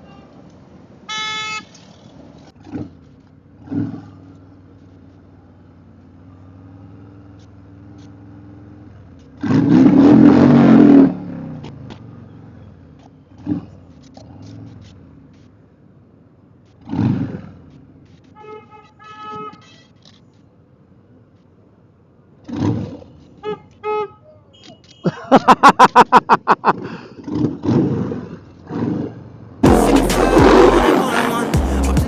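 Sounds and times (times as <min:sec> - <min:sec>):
motorcycle engine revving: 0:06.3 - 0:15.0, 0:22.4 - 0:23.2, 0:27.2 - 0:32.0.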